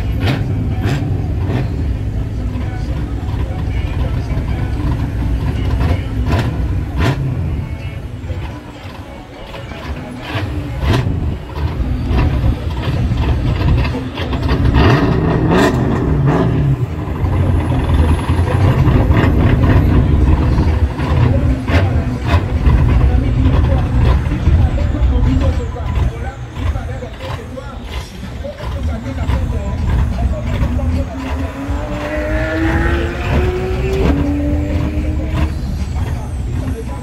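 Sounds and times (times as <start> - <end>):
vehicle engines running: 0.0 - 37.0.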